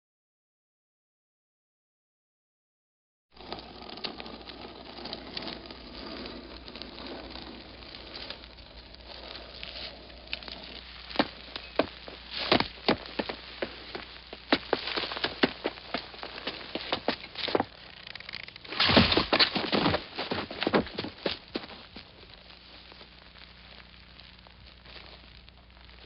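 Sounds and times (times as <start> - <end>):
crackling and pattering debris: 3.4 - 26.0
sharp snaps and clicks: 17.8 - 18.7.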